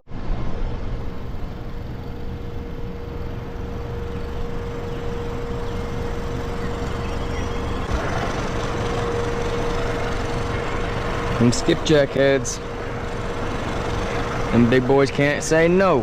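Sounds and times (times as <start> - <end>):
boat motor running: 0.7 - 16.0.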